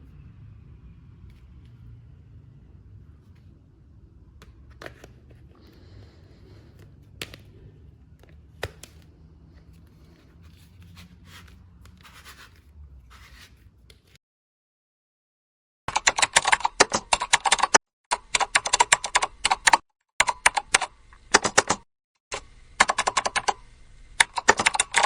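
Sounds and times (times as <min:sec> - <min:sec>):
packaging rustling and scraping: 0:04.6 - 0:13.7.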